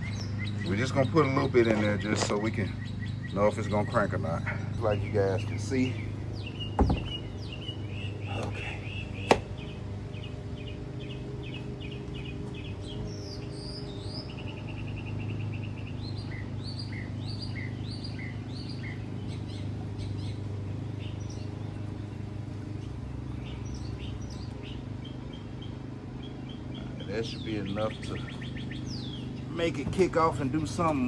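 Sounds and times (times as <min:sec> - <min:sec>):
songbirds chirping: 0:00.0 - 0:31.0
steady low hum: 0:00.0 - 0:31.0.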